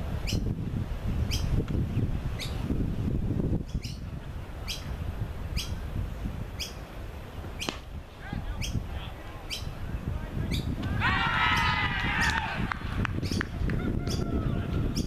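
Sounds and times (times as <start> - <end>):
wind rumble on microphone: 0.0 - 15.0
bird high chirp: 1.3 - 1.5, 3.7 - 4.9, 5.5 - 5.8, 6.6 - 6.8, 8.5 - 8.8, 9.5 - 9.7, 10.5 - 10.8, 13.2 - 13.5.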